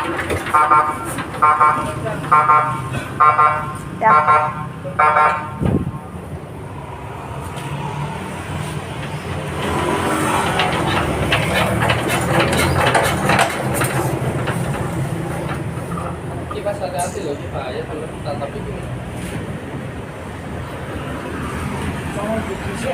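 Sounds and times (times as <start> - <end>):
loud clattering rattle: 0.0 - 2.4, 9.0 - 16.6
generator engine humming: 0.0 - 6.7.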